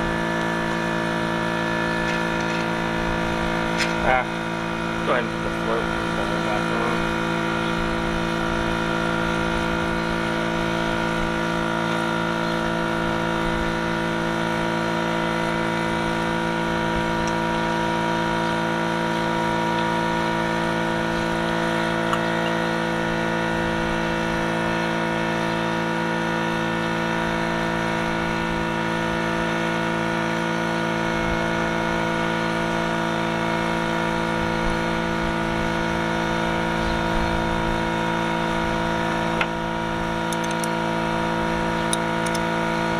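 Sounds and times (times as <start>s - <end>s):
machine humming: 0.0s - 25.2s.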